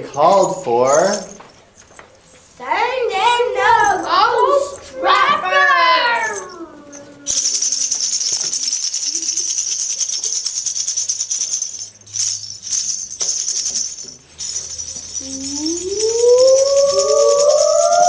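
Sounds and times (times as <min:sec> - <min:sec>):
shaker rattling: 0:00.0 - 0:02.0, 0:06.1 - 0:18.0.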